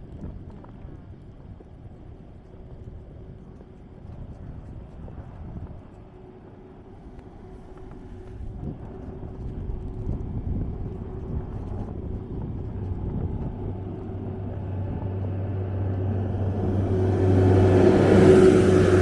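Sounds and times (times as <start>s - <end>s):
snow plow engine hum: 6.2s - 19.0s.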